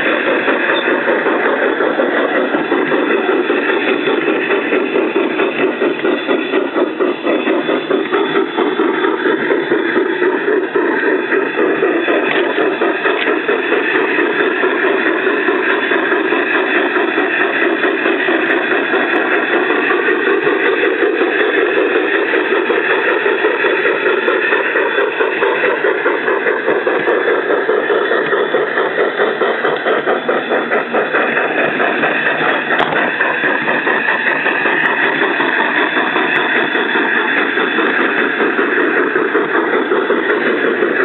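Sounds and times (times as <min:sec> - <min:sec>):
model train wheels clattering: 0:00.0 - 0:41.0
steam chuffing from small speaker: 0:00.0 - 0:41.0.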